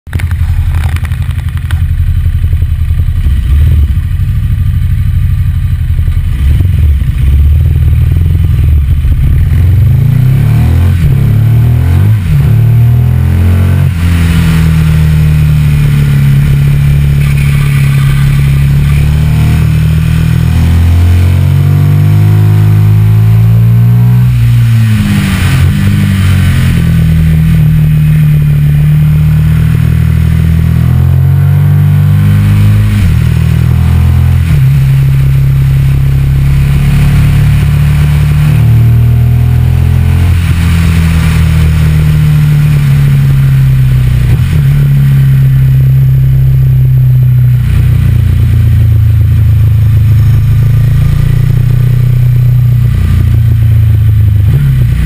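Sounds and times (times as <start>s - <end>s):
motorcycle engine accelerating: 0.1s - 55.0s
wind and road noise: 0.1s - 55.0s.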